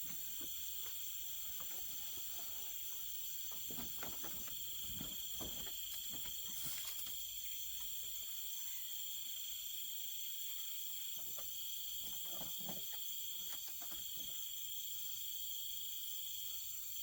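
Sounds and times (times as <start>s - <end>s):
soft rustles and light knocks: 0.0s - 7.2s, 11.2s - 14.5s
crickets trilling: 0.0s - 17.0s.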